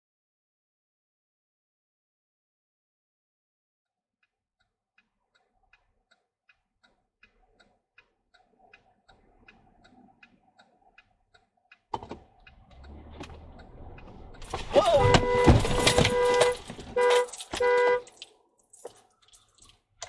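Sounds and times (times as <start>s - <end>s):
traffic noise: 11.9s - 19.9s
car horn honking: 14.5s - 18.2s.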